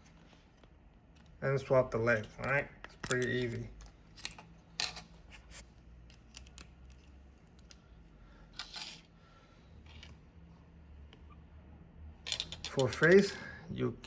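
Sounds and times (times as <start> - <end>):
plastic parts clicking and scraping: 2.2 - 5.4, 6.0 - 9.1, 9.8 - 10.2, 12.2 - 13.4.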